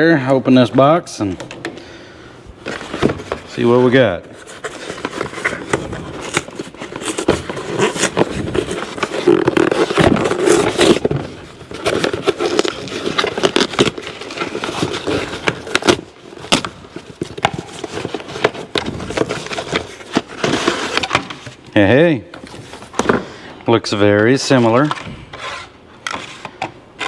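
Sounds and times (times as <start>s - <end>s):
cardboard packaging rustling: 2.6s - 21.8s.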